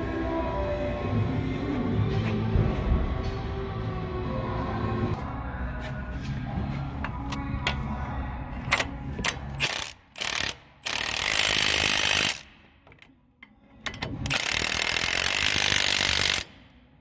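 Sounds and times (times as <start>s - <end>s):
mechanical tool running: 14.2s - 16.6s.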